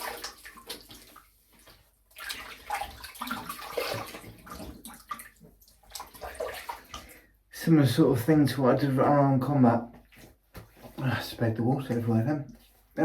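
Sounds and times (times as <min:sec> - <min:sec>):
water splashing in a sink: 0:00.0 - 0:07.5.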